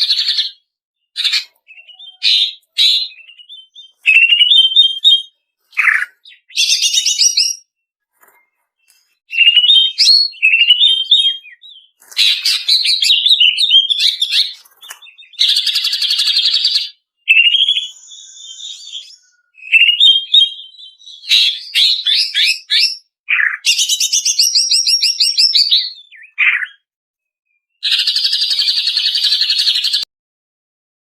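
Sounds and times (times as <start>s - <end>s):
bird singing high trills: 0.0s - 7.8s, 9.3s - 26.9s.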